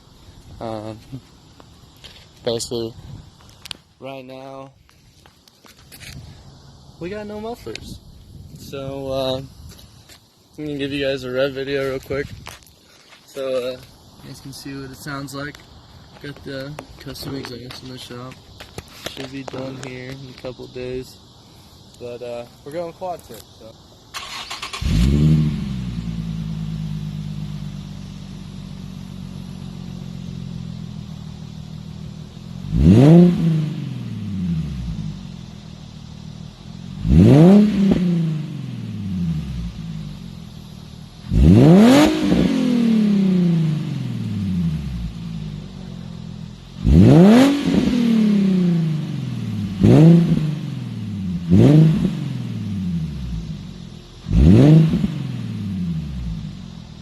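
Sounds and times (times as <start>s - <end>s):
car engine idling: 23.4s - 41.9s, 42.9s - 47.8s, 48.4s - 57.0s
engine revving: 24.2s - 30.8s, 31.4s - 57.0s.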